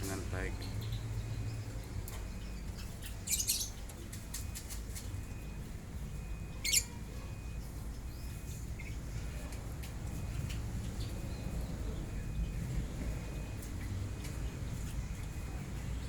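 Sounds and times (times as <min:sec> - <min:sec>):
lovebirds chirping: 0:00.0 - 0:03.9, 0:06.2 - 0:09.1.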